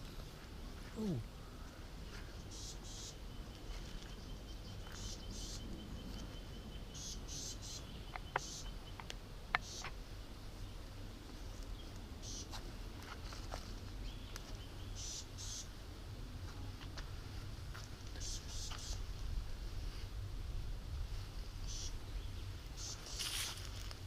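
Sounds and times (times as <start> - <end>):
raspy insect chirps: 2.5 - 3.2, 6.9 - 8.8, 9.6 - 9.9, 12.2 - 12.5, 15.0 - 15.7, 22.8 - 23.4
insect trill: 4.0 - 8.8.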